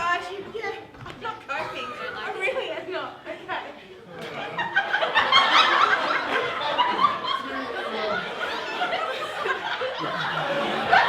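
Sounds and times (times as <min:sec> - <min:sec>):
people chattering: 0:00.0 - 0:11.0
people laughing: 0:01.6 - 0:03.2, 0:04.1 - 0:11.0.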